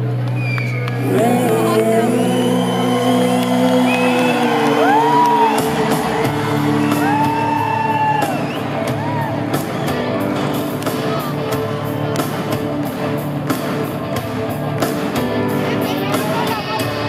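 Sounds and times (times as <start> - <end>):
audience whooping and whistling: 0.4 - 1.0, 2.1 - 10.0
drums playing: 3.4 - 17.0.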